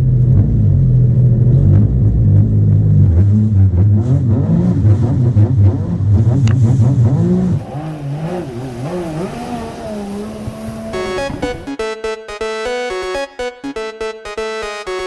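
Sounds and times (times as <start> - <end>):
jet ski engine revving: 0.5 - 11.7.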